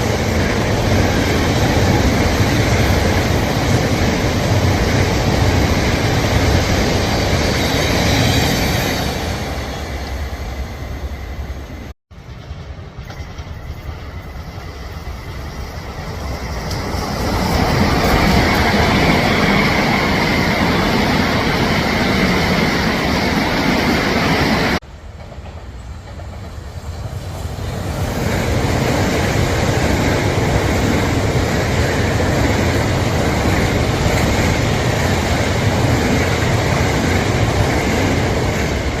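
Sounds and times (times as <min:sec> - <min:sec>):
train passing at speed: 0:00.0 - 0:39.0
clickety-clack over rail joints: 0:12.2 - 0:39.0.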